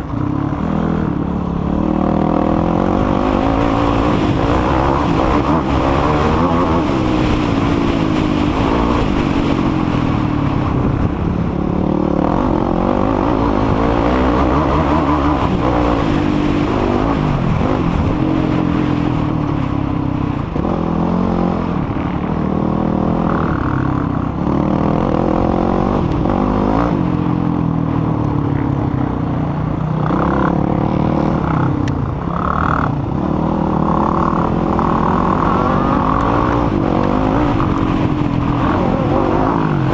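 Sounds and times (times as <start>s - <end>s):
quad engine revving hard: 1.7s - 9.5s, 11.7s - 18.4s, 32.4s - 39.9s.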